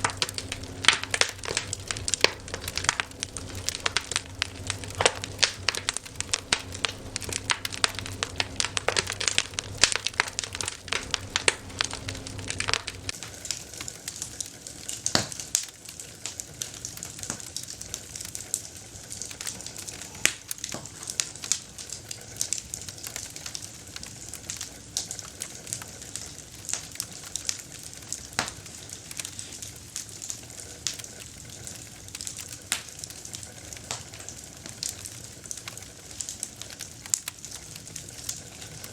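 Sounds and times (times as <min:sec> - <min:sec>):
steady hiss: 0:00.0 - 0:13.6
campfire crackling and popping: 0:00.0 - 0:38.9.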